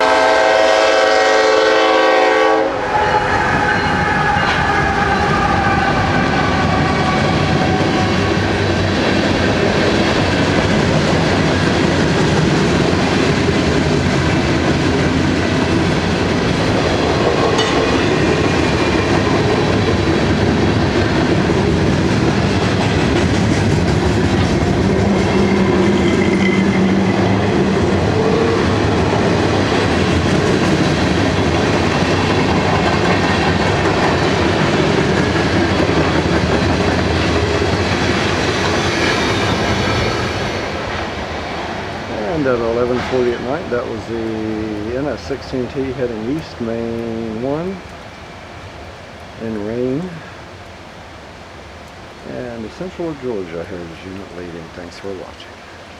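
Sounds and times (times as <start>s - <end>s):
locomotive air horn: 0.0s - 8.6s
freight train rumble and wheel clatter: 0.0s - 50.2s
heavy rain: 0.0s - 55.9s.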